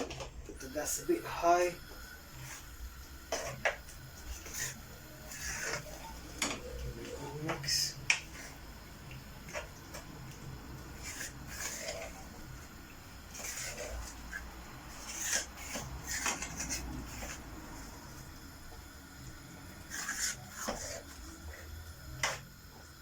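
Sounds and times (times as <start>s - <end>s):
spoon scraping cooking pot: 11.0s - 12.4s, 13.3s - 17.8s.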